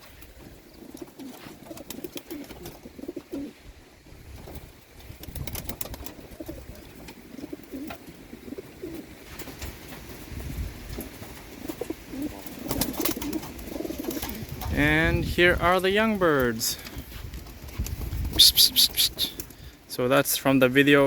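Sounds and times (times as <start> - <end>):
clicks and scuffles of birds moving: 0.0 - 3.5, 8.8 - 14.8, 16.4 - 19.7
pigeons cooing: 0.4 - 3.7, 5.5 - 10.2, 11.0 - 14.7, 18.2 - 19.8.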